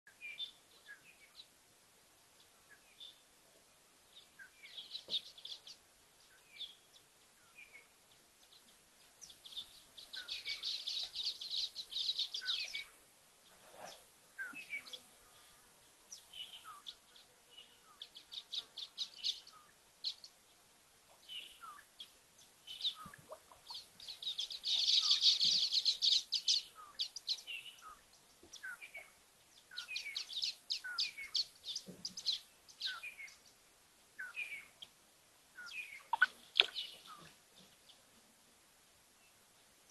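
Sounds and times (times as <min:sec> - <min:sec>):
birds chattering: 0:09.2 - 0:13.0, 0:22.7 - 0:33.4, 0:35.6 - 0:37.7.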